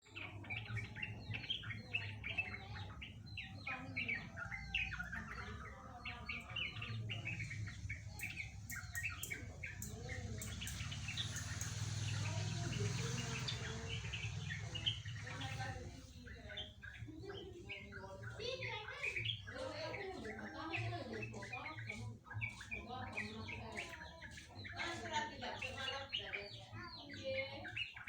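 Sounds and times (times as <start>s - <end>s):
bird singing warbling notes: 0.0s - 28.0s.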